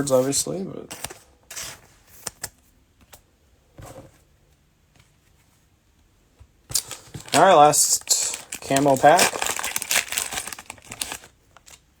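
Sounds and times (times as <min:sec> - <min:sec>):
trading cards rustling: 0:06.7 - 0:11.8.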